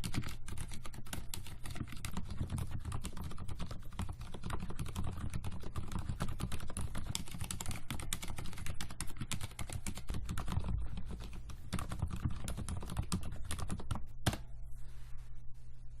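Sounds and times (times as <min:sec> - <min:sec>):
rapid typing on mechanical keyboard: 0:00.0 - 0:14.0.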